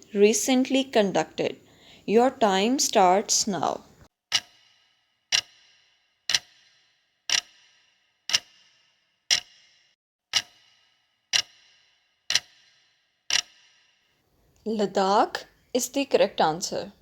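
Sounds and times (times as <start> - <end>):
countdown timer ticking: 4.3 - 13.9.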